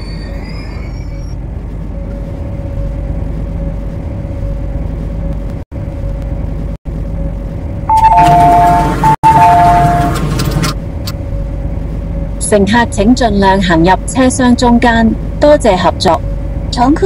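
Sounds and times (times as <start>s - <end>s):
train low rumble: 0.0s - 17.0s
two-tone door chime: 7.9s - 10.5s
train doors: 7.9s - 11.2s.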